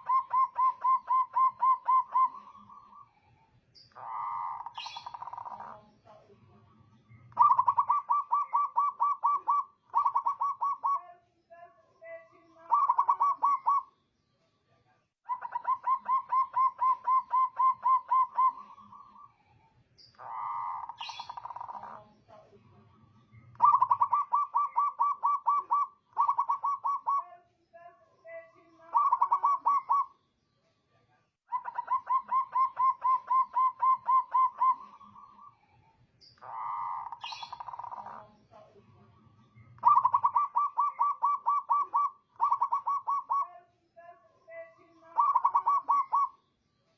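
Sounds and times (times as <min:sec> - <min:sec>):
dove cooing: 0:00.0 - 0:03.1, 0:03.9 - 0:06.2, 0:07.0 - 0:11.1, 0:12.6 - 0:13.9, 0:15.3 - 0:19.3, 0:20.2 - 0:22.4, 0:23.4 - 0:27.3, 0:28.8 - 0:30.1, 0:31.5 - 0:35.5, 0:36.4 - 0:38.7, 0:39.8 - 0:43.6, 0:45.1 - 0:46.4.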